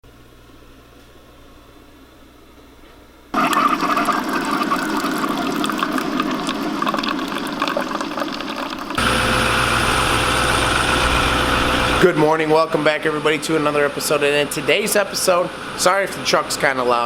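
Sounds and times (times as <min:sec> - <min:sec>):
rushing splashing water: 0:03.4 - 0:09.3.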